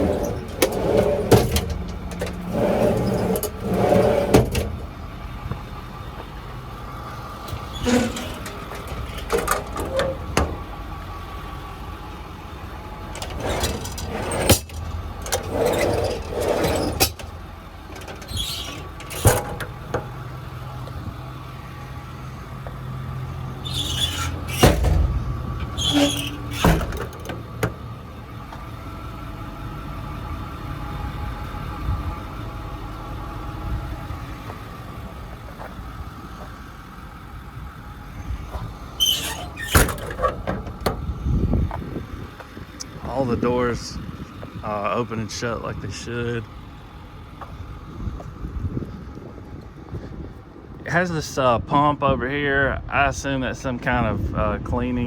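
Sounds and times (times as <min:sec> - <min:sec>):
door squeaks: 0:00.0 - 0:05.0, 0:07.4 - 0:10.7, 0:13.1 - 0:17.3, 0:18.0 - 0:20.1, 0:23.3 - 0:27.8, 0:39.0 - 0:41.2
steady low rumble: 0:00.0 - 0:23.7, 0:24.3 - 0:55.0
truck doors clunking shut: 0:00.0 - 0:43.2.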